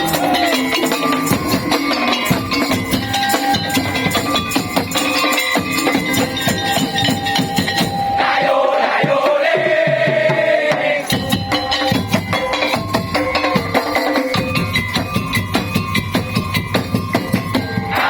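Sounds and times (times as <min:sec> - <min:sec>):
slit drums beating rapidly: 0:00.0 - 0:18.0.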